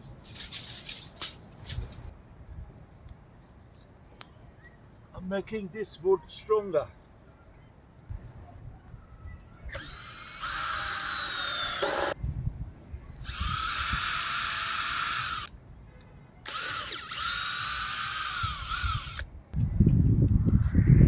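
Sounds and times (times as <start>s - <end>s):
power drill drilling into timber: 9.8s - 12.2s, 13.3s - 15.5s, 16.5s - 19.3s.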